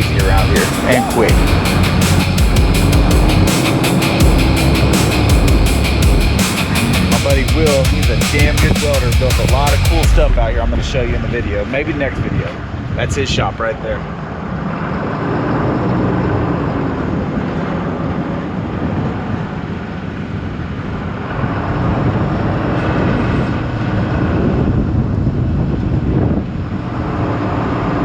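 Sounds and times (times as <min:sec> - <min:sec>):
truck engine running: 0:00.0 - 0:12.9
road and wind noise: 0:00.0 - 0:28.0.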